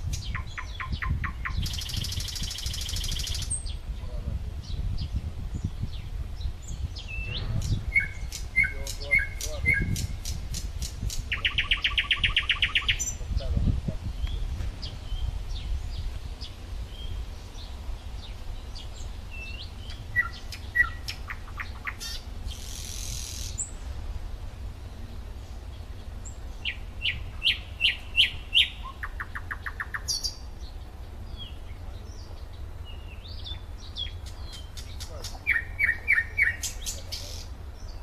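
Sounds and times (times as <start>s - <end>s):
low rumble: 0.0s - 29.7s
songbirds chirping and whistling: 0.0s - 38.0s
bird trill: 0.1s - 3.8s, 6.6s - 10.4s, 11.3s - 13.2s, 16.9s - 23.8s, 24.8s - 38.0s.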